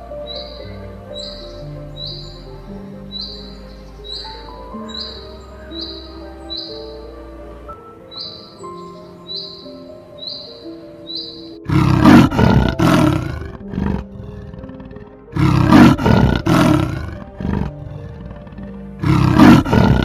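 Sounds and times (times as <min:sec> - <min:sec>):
soft background music: 0:00.0 - 0:20.0
big cat grunting: 0:11.6 - 0:20.0
big cat roaring: 0:11.6 - 0:20.0.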